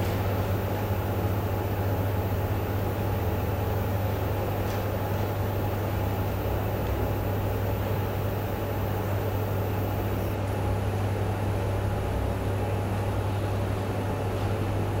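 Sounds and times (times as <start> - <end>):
room noise hiss: 0.0 - 10.5
low electrical hum: 0.0 - 15.0.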